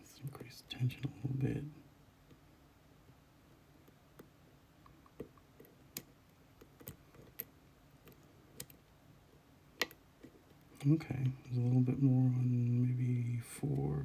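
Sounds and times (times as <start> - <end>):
lock pick clicking: 5.2 - 8.8.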